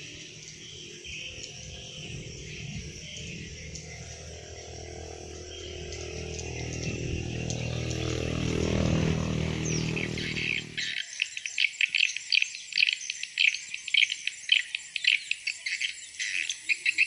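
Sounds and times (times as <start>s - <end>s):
low motor hum: 0.0s - 10.9s
birds chirping: 0.0s - 16.9s
insects chirping and buzzing: 0.0s - 17.0s.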